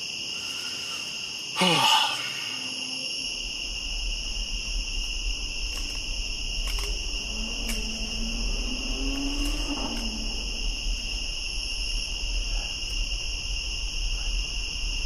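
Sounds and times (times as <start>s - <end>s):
crickets trilling: 0.0s - 15.0s
low rumble: 3.1s - 15.0s
faint clicks: 4.9s - 10.5s.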